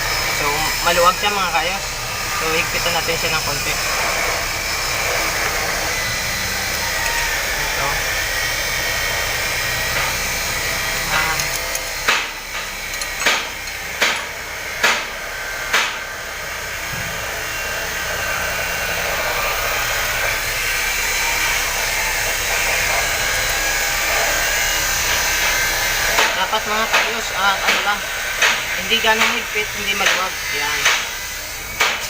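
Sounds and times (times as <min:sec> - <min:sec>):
steady blower noise: 0:00.0 - 0:32.0
sharp metallic clicks of tools: 0:11.1 - 0:15.0.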